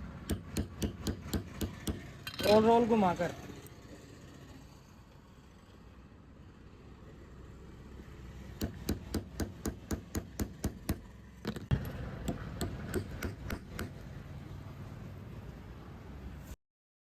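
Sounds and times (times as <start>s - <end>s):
hammer tapping: 0.2s - 2.0s, 8.6s - 14.0s.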